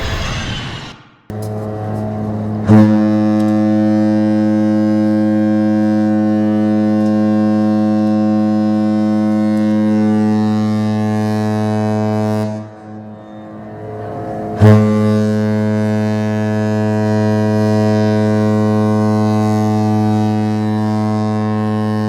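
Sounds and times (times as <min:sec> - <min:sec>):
ship's horn long low blast: 0:01.3 - 0:22.0.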